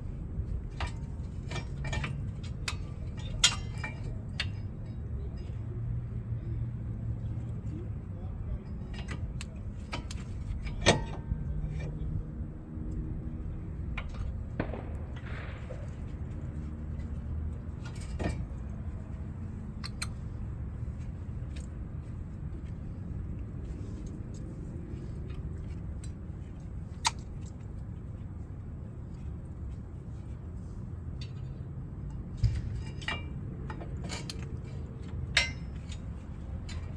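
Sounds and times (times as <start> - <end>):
steady low hum: 0.0 - 36.9
metal clicks and clinks: 0.7 - 5.0, 31.2 - 36.9.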